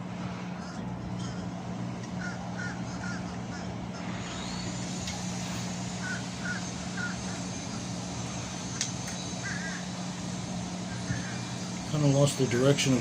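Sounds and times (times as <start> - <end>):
steady low hum: 0.0 - 13.0
bird calling: 2.1 - 12.2.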